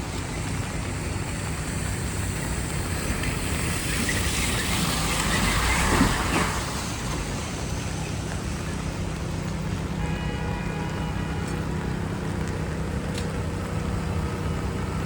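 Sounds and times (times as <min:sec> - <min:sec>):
tyre hiss on wet road: 0:00.0 - 0:11.5
traffic rumble: 0:00.0 - 0:15.0
vehicle passing: 0:01.7 - 0:09.2.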